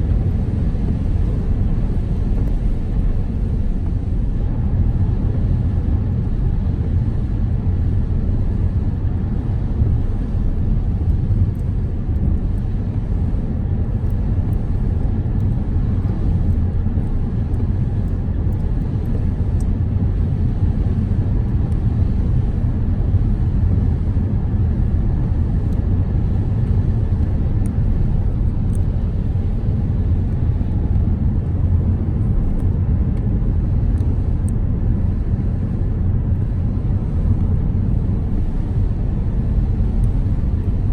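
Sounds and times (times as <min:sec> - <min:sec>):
car road and engine rumble: 0:00.0 - 0:40.9
faint light ticks: 0:11.0 - 0:13.0, 0:14.0 - 0:19.8, 0:28.6 - 0:29.0, 0:33.9 - 0:34.6.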